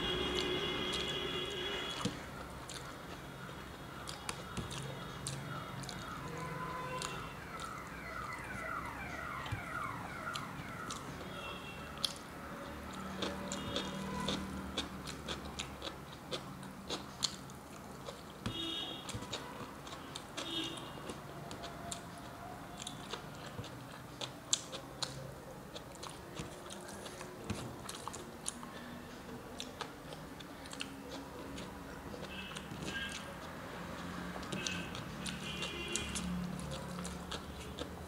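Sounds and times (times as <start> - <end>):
wet chewing clicks and smacks: 0.1 - 38.0.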